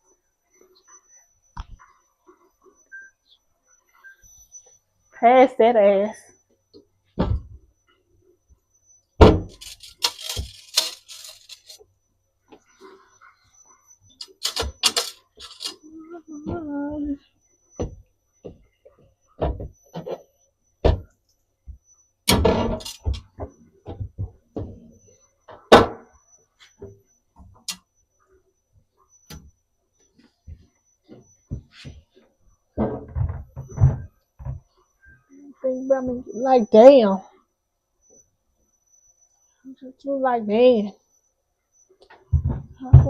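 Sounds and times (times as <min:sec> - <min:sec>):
kitchen items knocking and clicking: 0:09.3 - 0:11.8, 0:14.2 - 0:15.8, 0:22.3 - 0:23.3
household objects clattering: 0:09.4 - 0:11.8, 0:14.2 - 0:15.8, 0:22.3 - 0:23.3.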